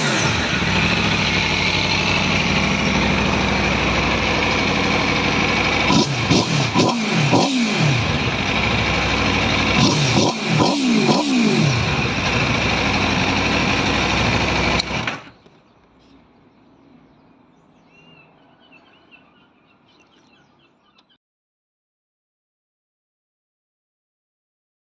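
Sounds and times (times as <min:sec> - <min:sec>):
motorcycle engine revving: 0:00.0 - 0:15.3
birds chirping: 0:15.2 - 0:21.2.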